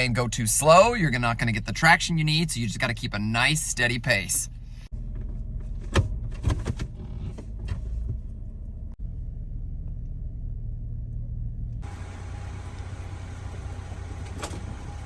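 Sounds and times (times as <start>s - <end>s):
car engine running: 4.0s - 15.0s.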